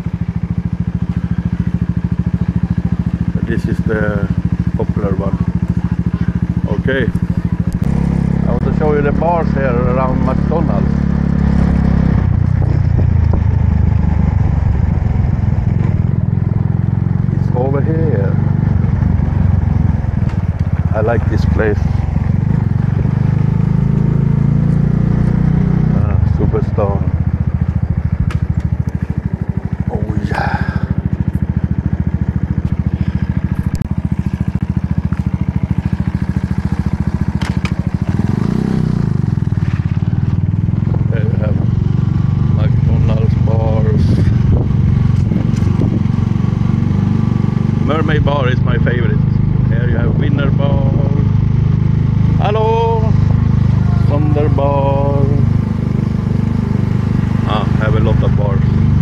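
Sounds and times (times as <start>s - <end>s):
motorbike engine running: 0.0s - 59.0s
road and wind noise: 0.0s - 59.0s
motorbike engine putter: 32.2s - 38.7s.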